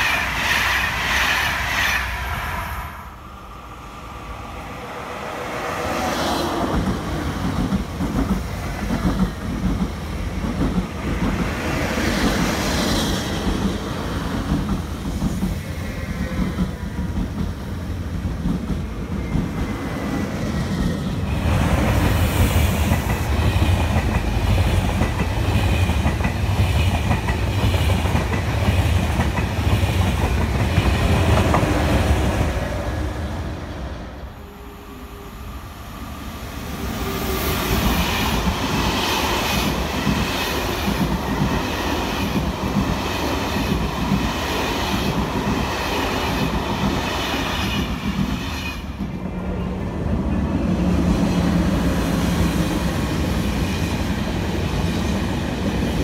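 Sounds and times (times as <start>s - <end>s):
passenger trains passing on rails: 0.0s - 56.0s.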